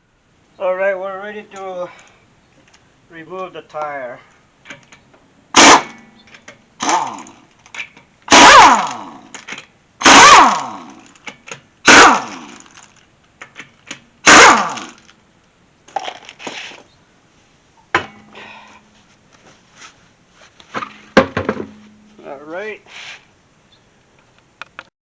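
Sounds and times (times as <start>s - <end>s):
air impact wrench hammering: 5.6s - 6.2s, 6.8s - 7.4s, 8.3s - 9.2s, 10.0s - 12.5s, 13.9s - 15.0s
impact wrench whine spinning down: 8.3s - 9.2s.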